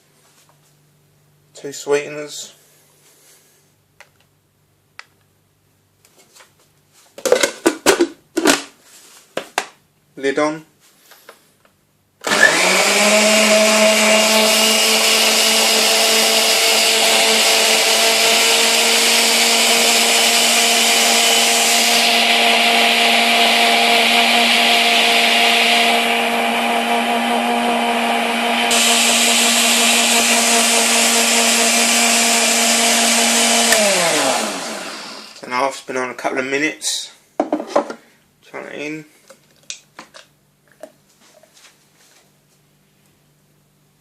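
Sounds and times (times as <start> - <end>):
electric blender motor running: 12.2 - 35.4.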